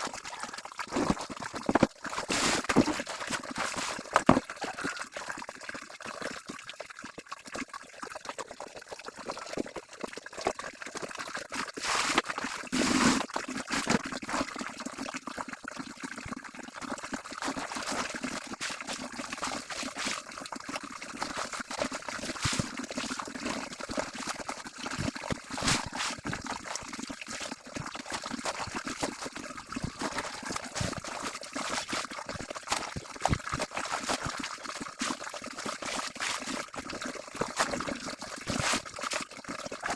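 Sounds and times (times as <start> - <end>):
water splashing from hand washing: 0.0 - 5.0, 17.2 - 39.9.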